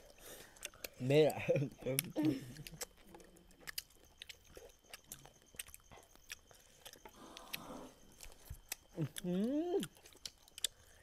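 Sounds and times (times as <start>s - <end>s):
people chewing food: 0.0s - 11.0s.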